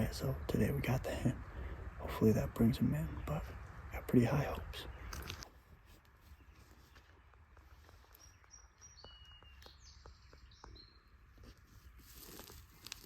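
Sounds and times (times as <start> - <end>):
faint songbird calls: 6.2 - 12.1.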